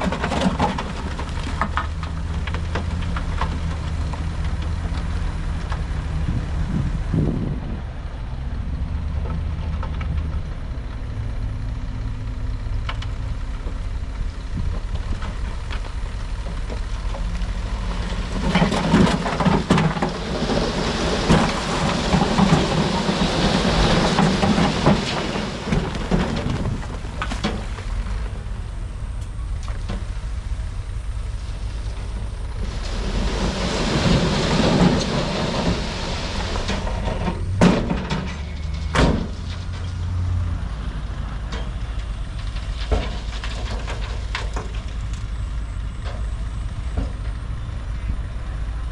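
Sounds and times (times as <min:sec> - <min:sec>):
loose rock crashing and rattling: 0:00.0 - 0:05.9, 0:14.6 - 0:28.5, 0:32.6 - 0:40.0, 0:42.3 - 0:45.3
heavy diesel machinery running: 0:00.0 - 0:48.9.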